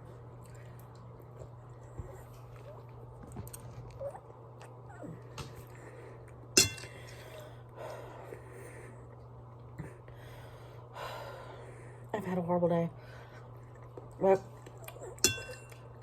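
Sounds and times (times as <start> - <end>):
steady low hum: 0.0 - 16.0
utensil clinking against dish: 6.6 - 7.2, 15.2 - 16.0.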